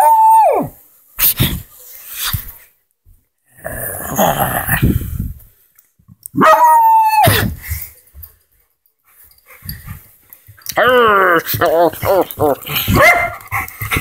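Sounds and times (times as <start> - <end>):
dog yelping: 6.4 - 7.4, 10.8 - 13.4
dogs growling: 10.7 - 14.0.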